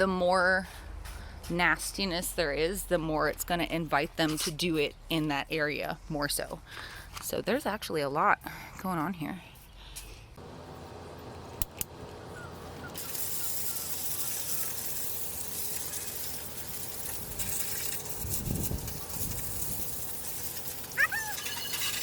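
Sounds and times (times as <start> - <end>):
sharp clicks: 11.6 - 12.0
liquid spraying hiss: 12.9 - 22.0.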